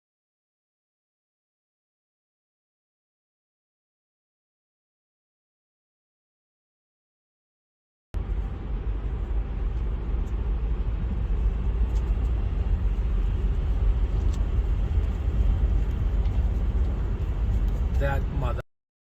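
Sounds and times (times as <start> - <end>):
car road and engine noise: 8.2 - 18.6.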